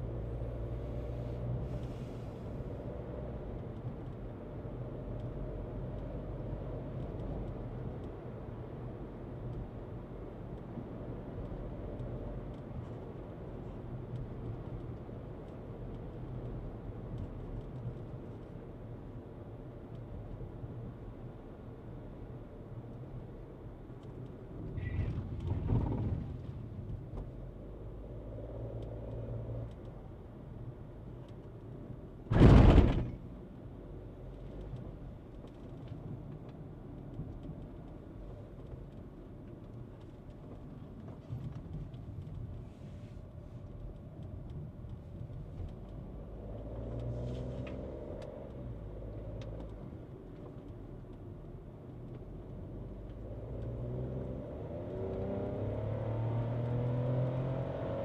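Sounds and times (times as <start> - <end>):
car engine and road rumble: 0.0 - 58.0
loud thump: 32.3 - 33.2.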